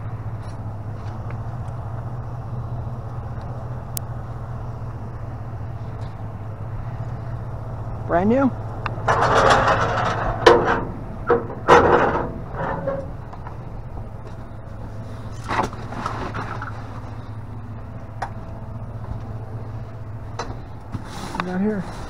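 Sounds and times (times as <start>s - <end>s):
steady low hum: 0.0s - 22.0s
objects clattering in a dumpster: 9.0s - 13.6s, 15.3s - 17.3s.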